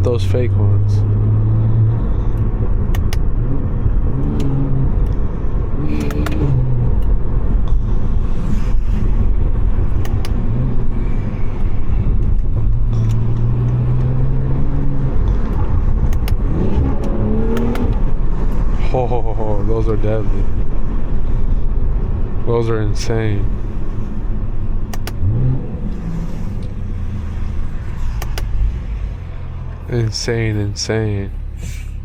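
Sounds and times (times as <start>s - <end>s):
car engine revving while driving: 0.0s - 31.6s
sharp clicks: 2.4s - 3.3s, 5.9s - 7.2s, 9.9s - 10.4s, 15.3s - 18.2s, 24.8s - 25.3s, 28.1s - 28.6s.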